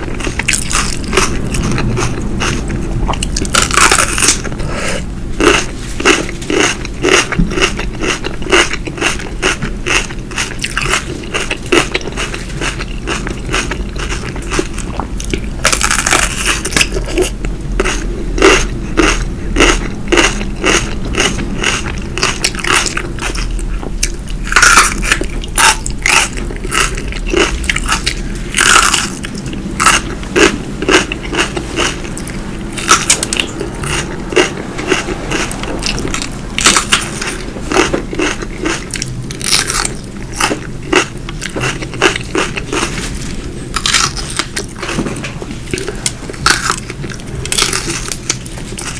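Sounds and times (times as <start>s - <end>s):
crunchy bites: 5.4s - 43.1s, 43.7s - 45.0s.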